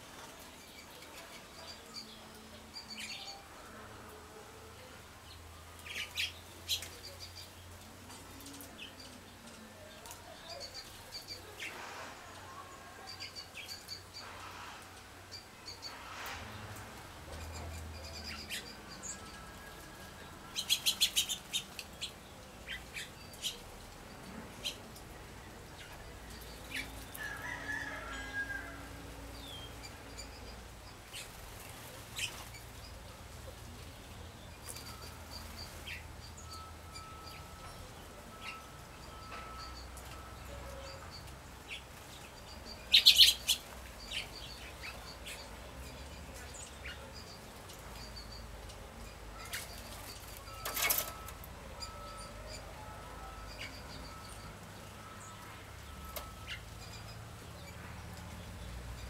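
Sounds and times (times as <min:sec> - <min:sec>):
small birds chirping: 0:05.2 - 0:11.9, 0:15.3 - 0:27.8, 0:29.2 - 0:52.7.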